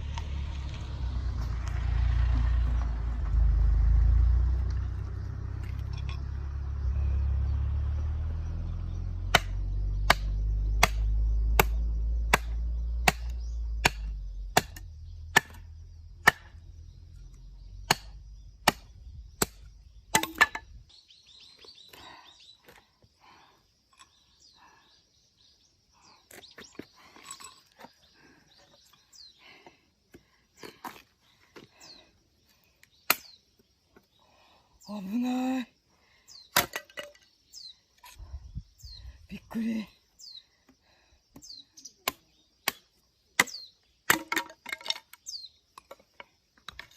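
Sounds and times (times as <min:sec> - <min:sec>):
low rumble: 0:00.0 - 0:20.0
blade striking firewood: 0:09.2 - 0:16.8, 0:17.8 - 0:20.8, 0:33.0 - 0:33.4, 0:36.5 - 0:37.3, 0:41.4 - 0:45.2.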